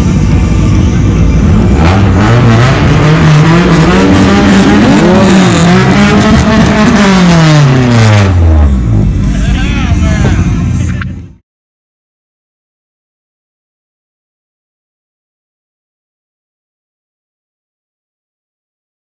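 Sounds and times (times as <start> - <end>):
engine revving: 0.0 - 11.0.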